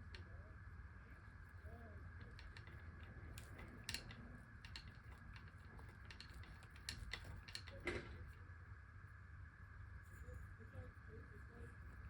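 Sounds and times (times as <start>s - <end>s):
chain tool clicking and creaking: 2.2s - 7.8s.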